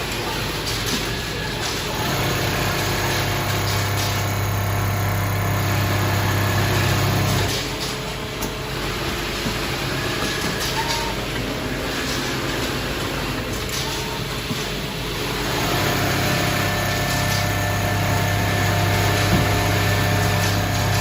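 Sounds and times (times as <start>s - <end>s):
quiet machinery noise: 0.0s - 21.0s
quilting machine humming: 0.0s - 21.0s.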